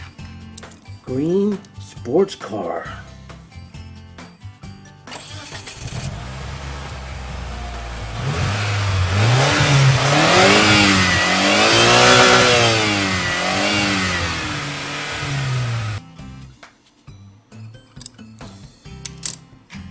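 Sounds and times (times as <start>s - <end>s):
sports car engine revving: 5.8s - 16.0s.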